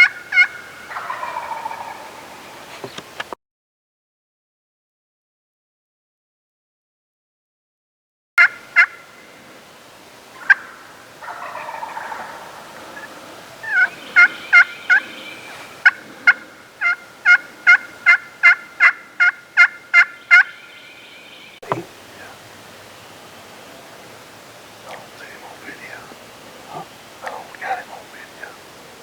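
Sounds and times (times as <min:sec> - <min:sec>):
turkey yelping: 0:00.0 - 0:02.6, 0:08.4 - 0:09.0, 0:10.3 - 0:20.8.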